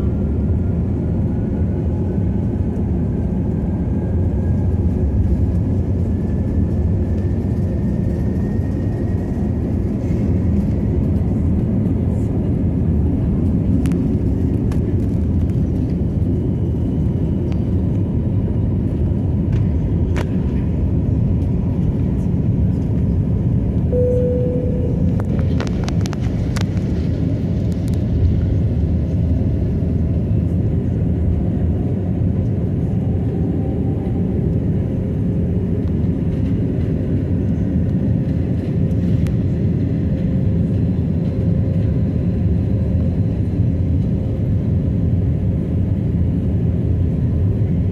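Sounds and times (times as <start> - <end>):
jet engine low rumble: 0.0 - 47.9
short steady tone: 23.9 - 25.3.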